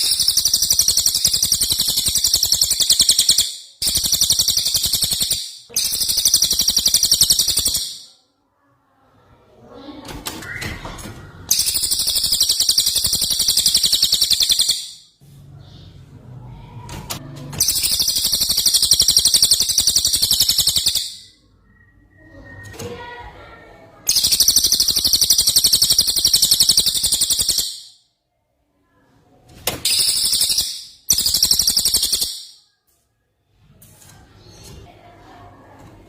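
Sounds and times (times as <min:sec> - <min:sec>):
bird song with fast high trills: 0:00.0 - 0:08.1, 0:11.5 - 0:15.1, 0:17.6 - 0:22.4, 0:24.1 - 0:28.0, 0:29.9 - 0:32.6.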